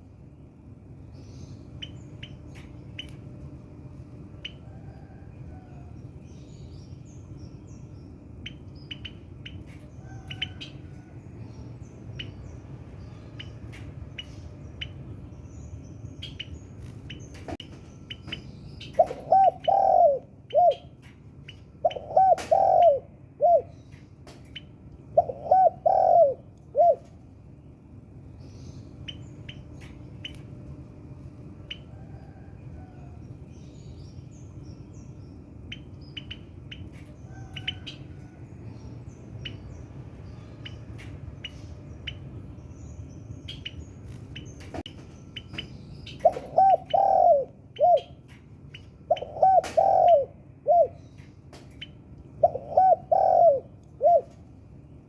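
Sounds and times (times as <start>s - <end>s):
small birds chirping: 0.0s - 3.7s, 4.4s - 55.0s
dove cooing: 19.0s - 20.9s, 21.8s - 23.7s, 25.1s - 27.2s, 46.2s - 48.2s, 49.1s - 51.0s, 52.4s - 54.4s.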